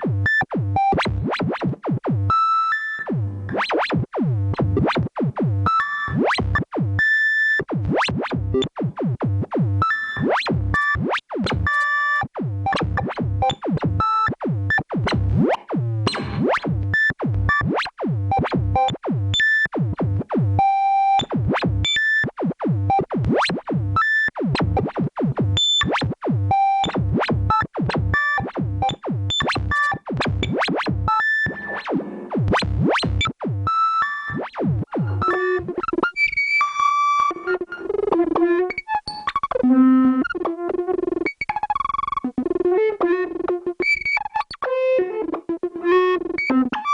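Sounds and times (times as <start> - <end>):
synthesizer blips swooping in pitch: 34.4 - 35.8.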